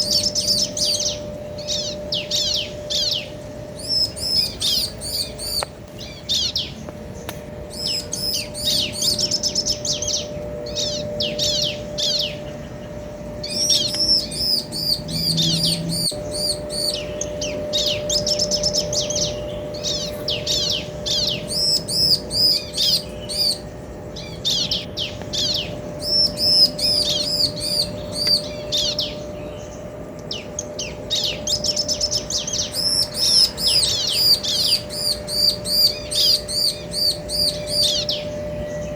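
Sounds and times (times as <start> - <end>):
birds chattering: 0.0 - 38.9.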